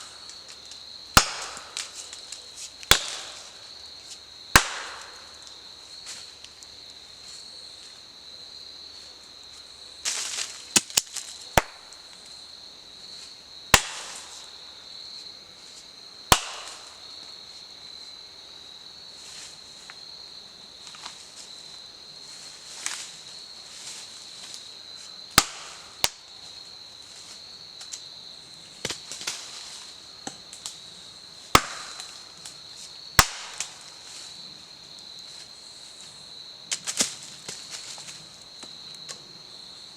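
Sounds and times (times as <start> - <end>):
campfire wood popping and cracking: 0.0 - 3.6, 4.5 - 5.6, 10.7 - 12.0, 13.7 - 14.5, 16.3 - 17.0, 25.4 - 26.2, 31.6 - 32.6, 33.2 - 34.0
high insect drone: 0.0 - 39.9.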